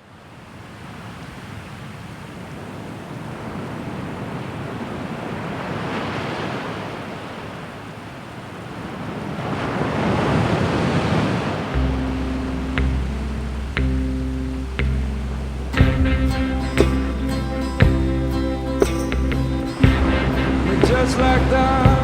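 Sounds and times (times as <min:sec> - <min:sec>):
ocean surf washing in: 0:00.0 - 0:22.0.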